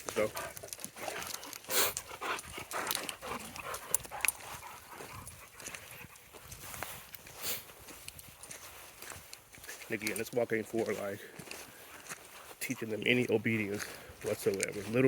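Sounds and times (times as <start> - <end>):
rustling steps: 0.0 - 15.0
dog panting: 0.1 - 9.0.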